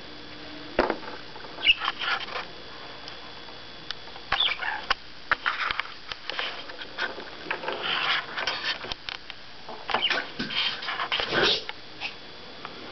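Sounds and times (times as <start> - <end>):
budgerigar chattering: 1.6 - 1.9, 4.4 - 4.8.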